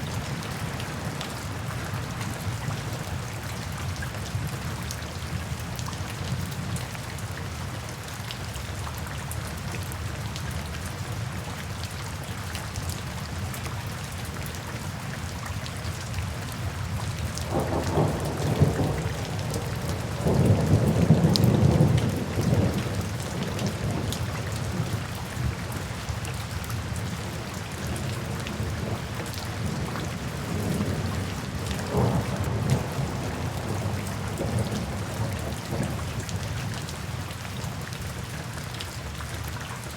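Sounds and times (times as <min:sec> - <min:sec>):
steady rain falling: 0:00.0 - 0:39.9
thunder rumbling: 0:31.8 - 0:36.3.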